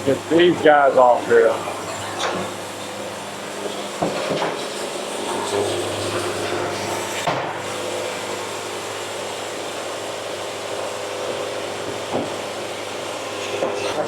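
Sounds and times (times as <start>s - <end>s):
sawmill humming: 0.0s - 4.1s.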